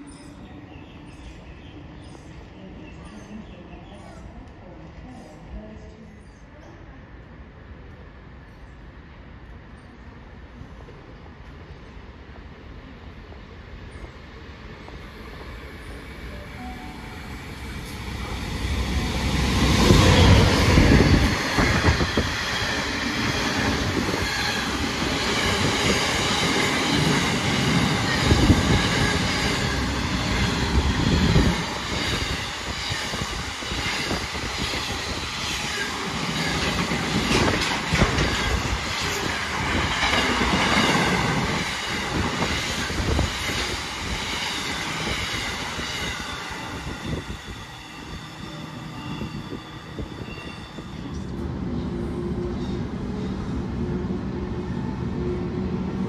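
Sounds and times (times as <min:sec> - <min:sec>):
train wheels clattering over rails: 0:35.6 - 0:45.3.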